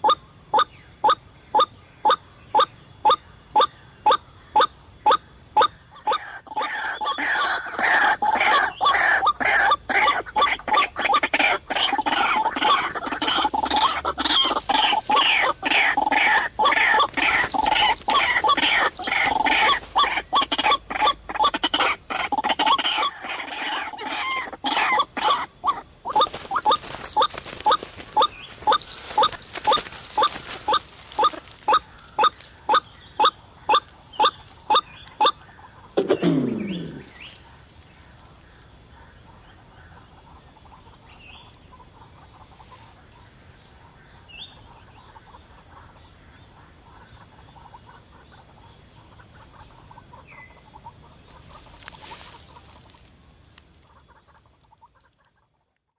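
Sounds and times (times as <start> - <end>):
waterhen calling: 0.0 - 37.4.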